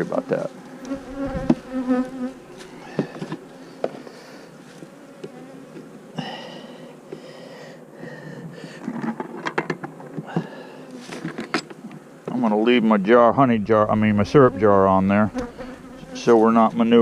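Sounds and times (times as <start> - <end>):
honeybees buzzing: 0.0 - 8.0, 9.9 - 17.0
bee flying close: 0.3 - 6.2, 13.7 - 16.8.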